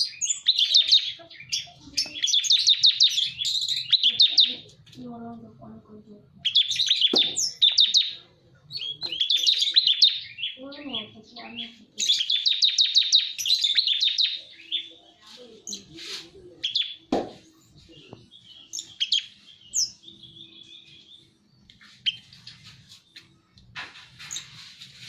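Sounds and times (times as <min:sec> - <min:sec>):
bird singing trills and chirps: 0:00.0 - 0:05.2, 0:06.2 - 0:24.6
sharp knock: 0:07.1 - 0:07.4, 0:17.1 - 0:17.4.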